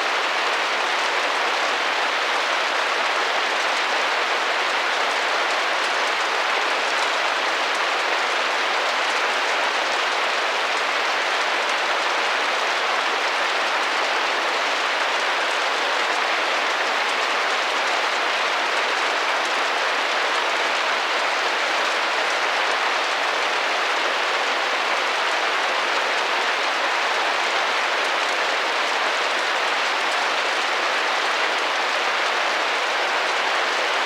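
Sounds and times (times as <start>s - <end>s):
rain pattering on a window: 0.0s - 34.0s.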